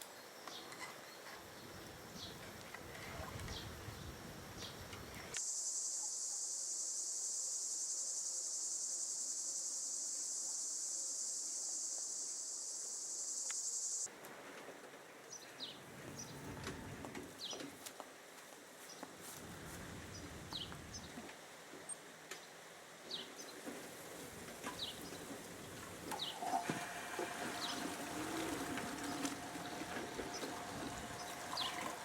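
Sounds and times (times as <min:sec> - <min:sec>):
insects droning: 0:00.0 - 0:14.1, 0:22.8 - 0:32.0.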